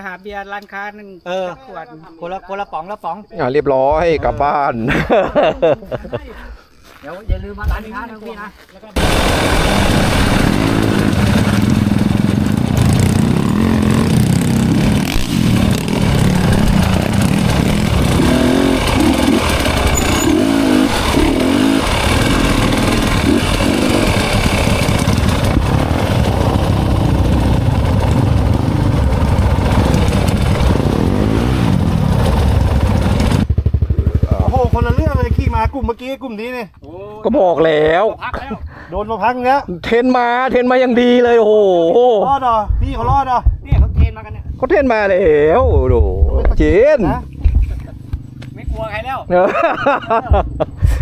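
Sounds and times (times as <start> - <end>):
dirt bike engine revving: 9.0 - 35.8
steady rushing noise: 9.0 - 35.8.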